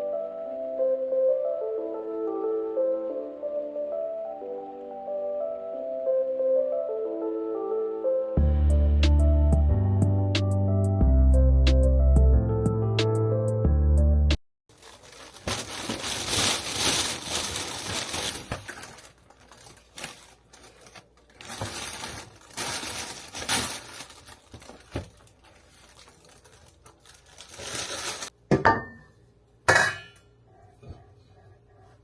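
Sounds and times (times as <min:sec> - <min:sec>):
crinkling: 0:14.7 - 0:28.4
dishes clinking: 0:28.5 - 0:30.2.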